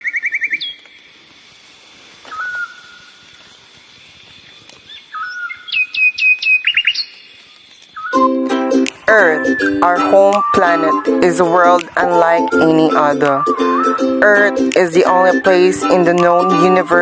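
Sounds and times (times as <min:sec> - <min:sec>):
bird whistle: 0:00.0 - 0:00.8, 0:02.3 - 0:03.1, 0:04.9 - 0:07.2, 0:08.0 - 0:08.4, 0:09.3 - 0:11.2, 0:12.0 - 0:14.2
bird trill: 0:00.0 - 0:00.9, 0:04.9 - 0:08.4
faint high hiss: 0:00.0 - 0:08.2
sharp downward-slurred bird notes: 0:08.0 - 0:15.5.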